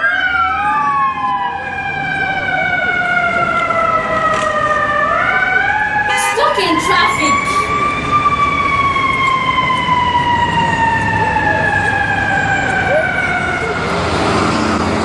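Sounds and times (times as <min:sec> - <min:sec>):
fire truck siren wailing: 0:00.0 - 0:15.0.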